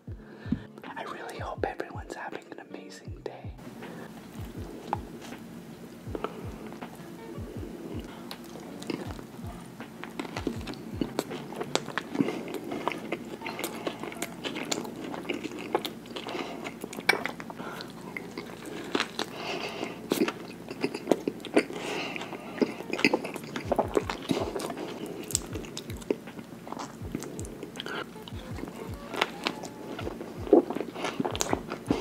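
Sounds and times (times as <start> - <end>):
man chewing food: 3.6 - 32.0.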